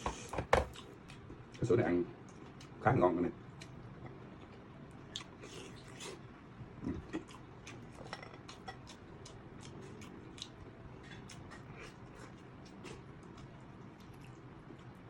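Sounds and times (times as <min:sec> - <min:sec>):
quiet chewing: 0:00.1 - 0:02.8, 0:03.5 - 0:06.2, 0:06.8 - 0:15.0.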